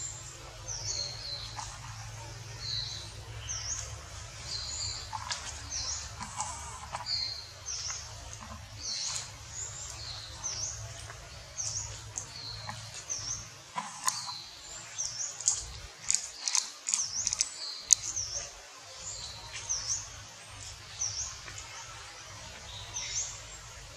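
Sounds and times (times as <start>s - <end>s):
small bird chirping: 0.0s - 23.9s
sharp clicks: 15.0s - 18.1s.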